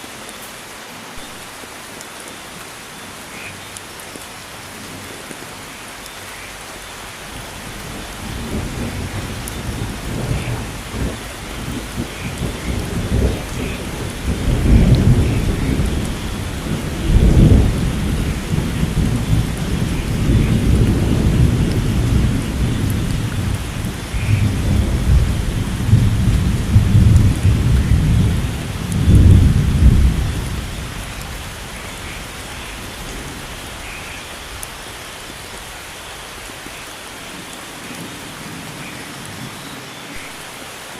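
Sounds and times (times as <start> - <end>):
rain: 0.0 - 40.9
rolling thunder rumble: 7.4 - 34.6.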